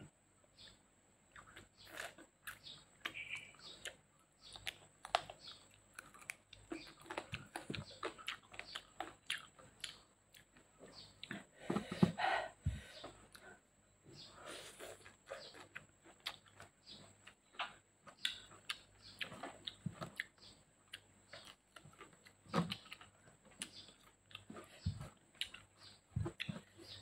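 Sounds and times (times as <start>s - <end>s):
chewing with wet mouth clicks: 1.3s - 11.4s, 14.8s - 27.0s
soft low thumps on a plate: 11.6s - 13.0s, 24.7s - 25.1s.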